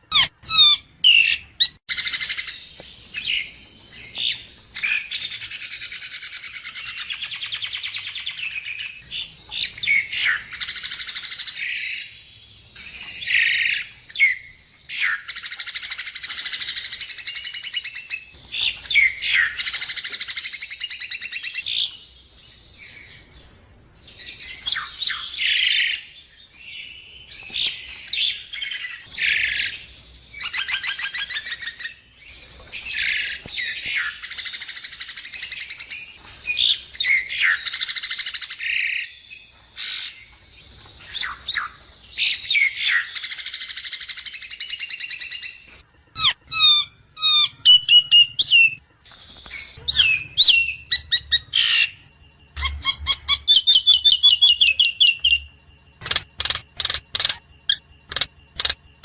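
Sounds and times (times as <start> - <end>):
bird whistles and squawks: 0.0 - 2.6, 46.2 - 52.0, 52.6 - 55.5.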